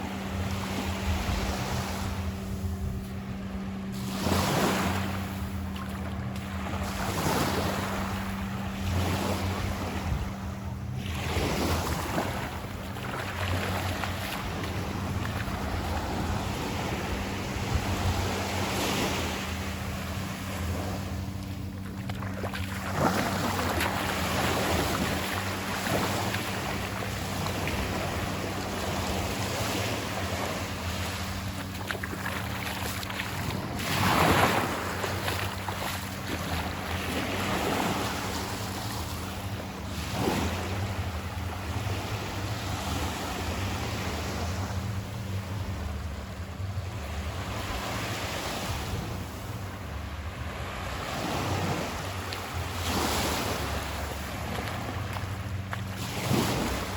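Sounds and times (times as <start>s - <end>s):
wind buffeting microphone: 0.0s - 42.6s
surf washing up on beach: 21.8s - 44.7s, 50.8s - 56.9s.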